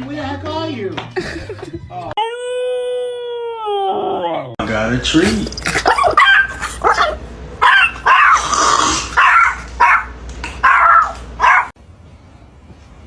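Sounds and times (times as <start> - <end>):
dog barking and yipping: 5.1 - 11.8.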